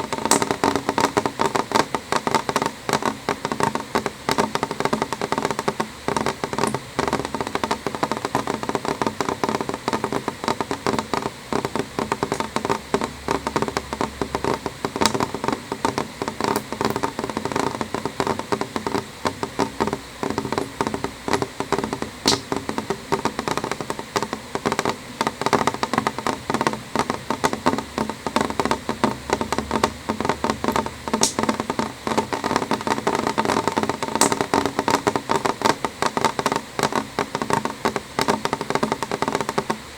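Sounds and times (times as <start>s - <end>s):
rain tapping on window glass: 0.0s - 39.9s.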